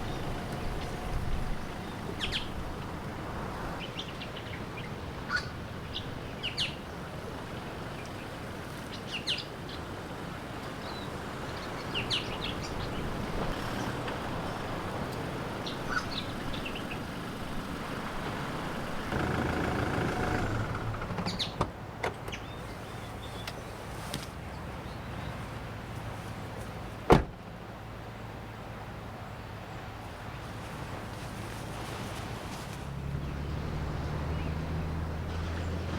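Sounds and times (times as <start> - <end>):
small birds chirping: 0.0 - 9.9, 10.8 - 21.6, 22.2 - 23.8, 33.2 - 35.9
wind: 0.0 - 35.9
surf: 22.6 - 35.9.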